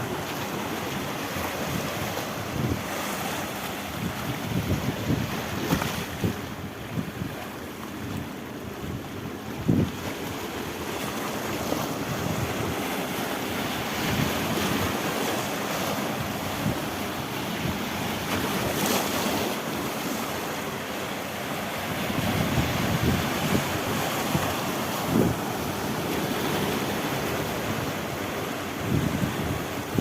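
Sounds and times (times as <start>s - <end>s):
waves breaking on rocks: 0.0s - 30.0s
wind buffeting microphone: 3.9s - 7.4s, 21.9s - 28.1s, 28.7s - 30.0s.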